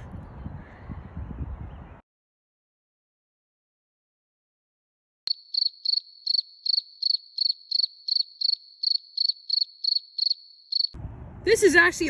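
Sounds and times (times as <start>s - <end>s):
pulsing cricket trill: 5.3s - 11.0s.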